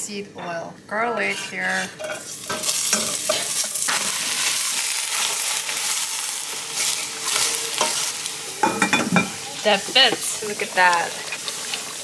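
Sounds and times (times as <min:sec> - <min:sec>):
wooden spatula scraping pan: 0:01.0 - 0:04.2
garlic sizzling in oil: 0:01.7 - 0:12.0.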